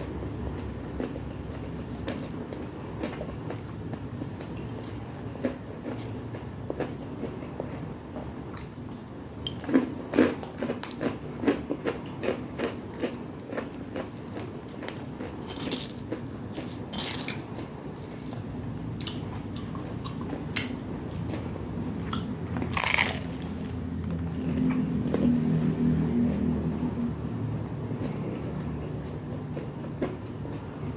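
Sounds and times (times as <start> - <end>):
person chewing crunchy snacks: 0.6 - 7.8, 8.5 - 30.9.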